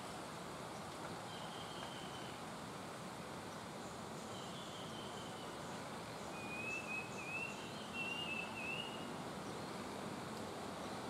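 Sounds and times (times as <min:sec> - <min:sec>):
outdoor background hiss: 0:00.0 - 0:11.0
bird whistled song: 0:01.3 - 0:02.4, 0:04.3 - 0:05.6, 0:06.2 - 0:09.1.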